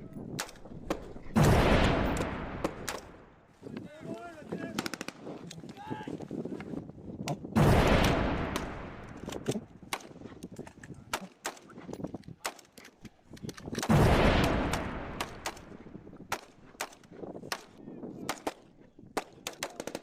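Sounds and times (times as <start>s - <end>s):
airsoft shot clicks: 13.8s - 17.7s.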